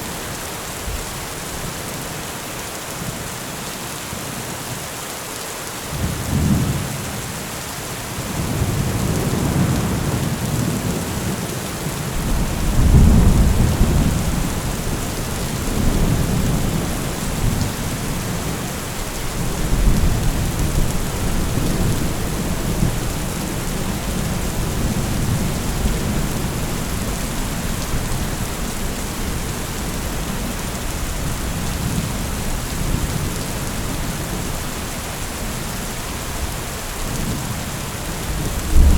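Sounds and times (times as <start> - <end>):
steady rain hissing: 0.0 - 38.9
rolling thunder: 12.1 - 29.6, 38.2 - 38.9.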